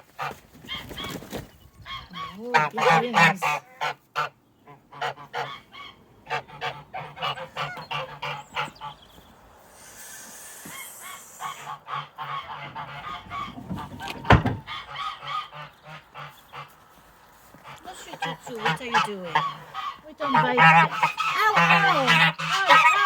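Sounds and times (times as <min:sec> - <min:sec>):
geese honking: 0:00.0 - 0:01.1, 0:01.8 - 0:23.0.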